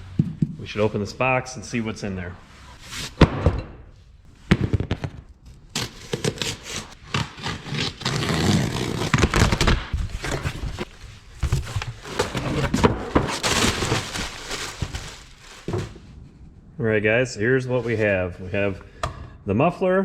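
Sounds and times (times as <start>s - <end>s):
cardboard box being opened: 5.8s - 16.0s
packing material crackling: 5.8s - 16.0s.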